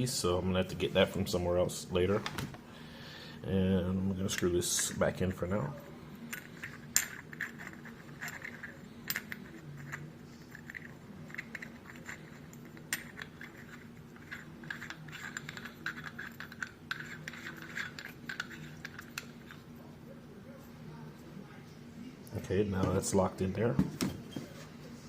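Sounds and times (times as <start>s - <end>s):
metal threads scraping: 6.2s - 19.8s.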